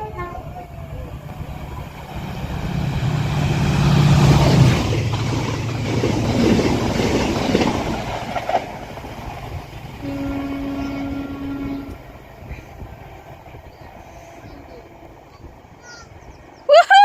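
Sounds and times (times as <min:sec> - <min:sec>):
diesel locomotive passing: 0:00.0 - 0:16.7
train wheels clattering: 0:01.7 - 0:10.0.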